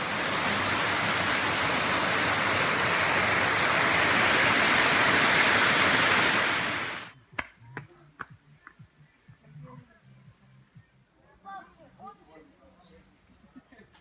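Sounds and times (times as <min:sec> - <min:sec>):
waterfall roaring: 0:00.0 - 0:07.1.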